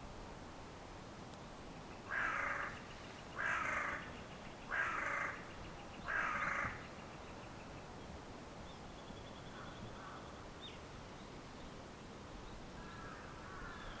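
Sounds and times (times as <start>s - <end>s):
crow cawing: 2.1s - 2.8s, 3.4s - 4.1s, 4.7s - 5.4s, 6.1s - 6.8s, 12.8s - 13.9s.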